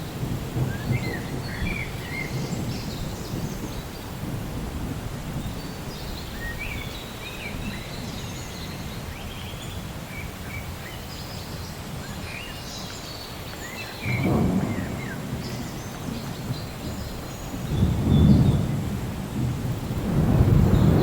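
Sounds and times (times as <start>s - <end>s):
low thunder rumble: 0.0s - 12.3s, 14.0s - 21.0s
rain hiss: 0.0s - 21.0s
birds chirping: 5.4s - 21.0s.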